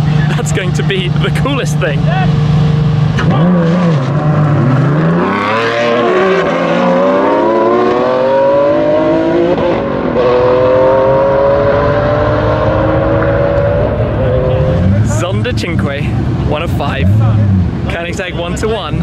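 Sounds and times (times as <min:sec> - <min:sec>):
sports car engines accelerating hard: 0:00.0 - 0:19.0.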